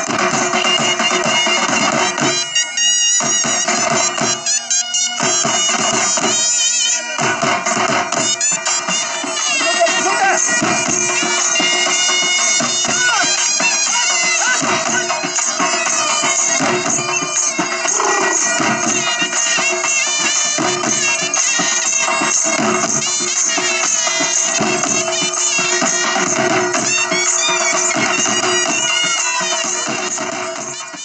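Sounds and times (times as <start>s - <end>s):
reedy wind instrument melody: 0.0s - 31.0s
held drone notes: 17.8s - 19.2s.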